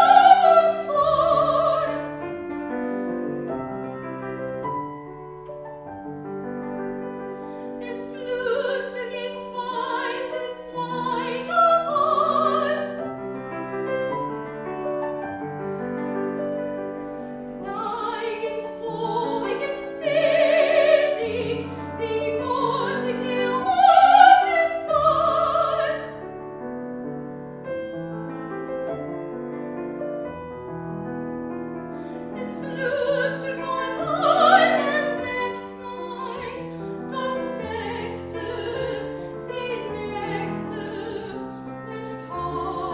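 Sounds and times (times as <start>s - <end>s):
piano: 0.0s - 42.9s
person singing with vibrato: 32.3s - 42.9s.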